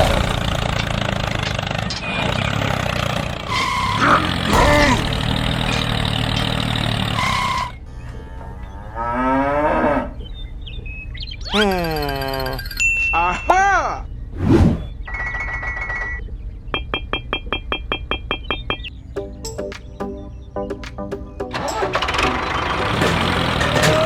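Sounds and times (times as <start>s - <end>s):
cow mooing: 8.4s - 10.2s.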